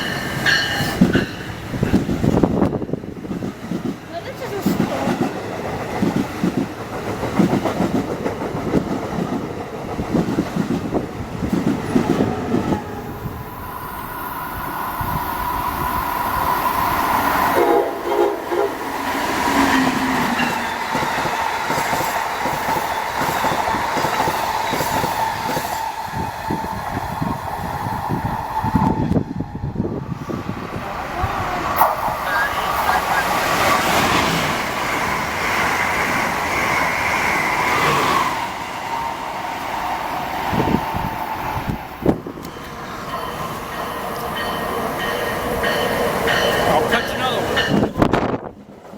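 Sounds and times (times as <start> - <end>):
train wheels clattering over rails: 0.0 - 12.9, 18.9 - 27.4, 39.6 - 48.9
train horn blast: 17.5 - 20.3.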